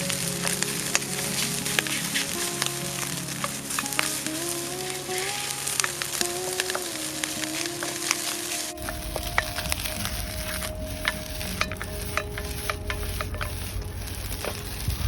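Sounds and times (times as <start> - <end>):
rice sizzling in a pan: 0.0 - 15.0
spatula scraping a pan: 0.1 - 15.0
low rumble: 8.8 - 15.0.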